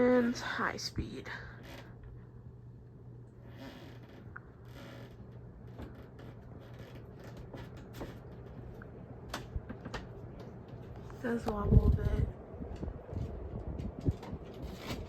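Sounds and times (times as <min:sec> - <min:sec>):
ceiling fan humming: 0:00.0 - 0:15.0
faint creaks and clicks: 0:01.6 - 0:02.2, 0:03.3 - 0:11.2.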